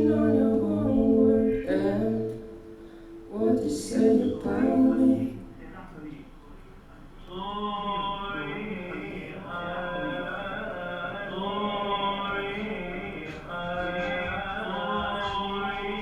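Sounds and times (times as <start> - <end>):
chant-like melodic phrases: 0.0 - 5.6.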